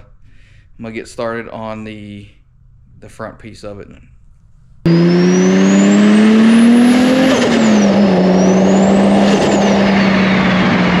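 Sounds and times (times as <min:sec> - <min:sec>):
car engine accelerating: 0:04.9 - 0:11.0
high whine: 0:04.9 - 0:11.0.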